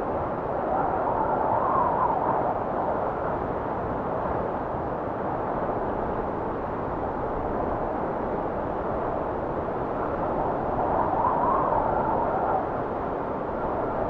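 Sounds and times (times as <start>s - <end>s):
blizzard wind blowing: 0.0s - 14.0s
faint wind whistle: 10.0s - 14.0s.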